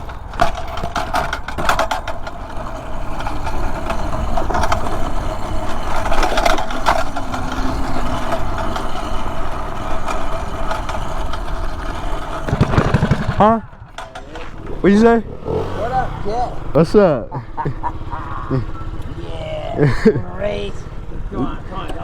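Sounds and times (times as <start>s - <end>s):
knocks and rattles: 0.0s - 15.8s
small motorbike engine idling: 0.0s - 22.0s.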